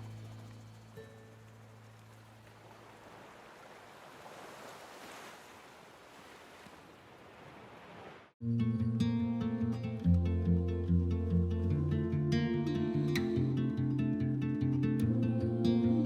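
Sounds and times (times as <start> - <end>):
sea waves washing in: 0.0 - 8.4.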